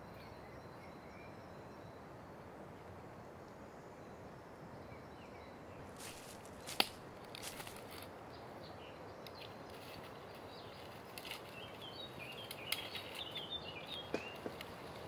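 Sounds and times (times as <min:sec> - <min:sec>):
songbird singing: 0:00.0 - 0:15.0
steady background hiss: 0:00.0 - 0:15.0
twigs and dry leaves rustling: 0:05.8 - 0:15.0.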